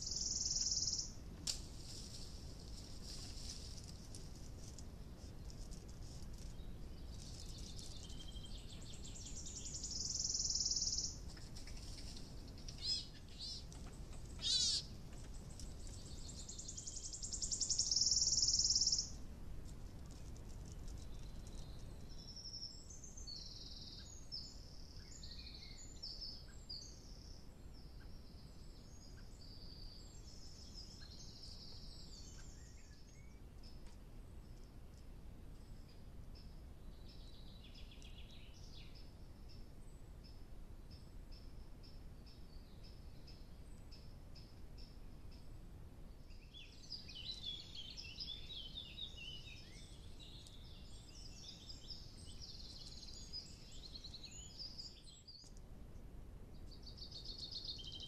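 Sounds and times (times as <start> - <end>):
birds singing: 0.0 - 1.2, 6.4 - 19.2, 20.9 - 34.6, 46.1 - 55.6, 56.5 - 58.0.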